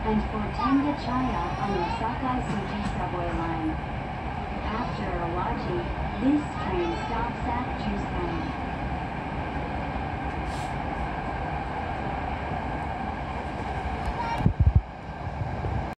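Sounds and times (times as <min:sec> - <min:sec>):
train carriage rumble: 0:00.0 - 0:16.0
brief high hiss: 0:10.4 - 0:10.8.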